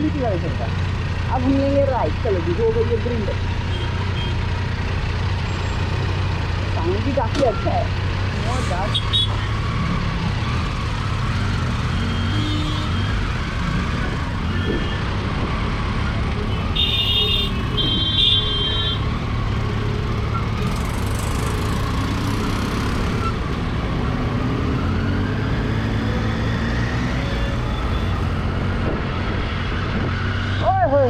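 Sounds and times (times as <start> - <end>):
motorcycle engine running: 0.0 - 24.1
wind and road noise: 0.0 - 31.0
vehicle horn toots: 8.9 - 9.4, 12.2 - 13.1, 16.5 - 19.1.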